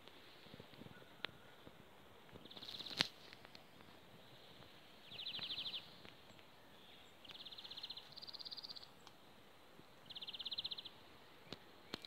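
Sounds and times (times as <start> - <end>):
songbird rapid trills: 2.4 - 3.2, 4.4 - 9.2.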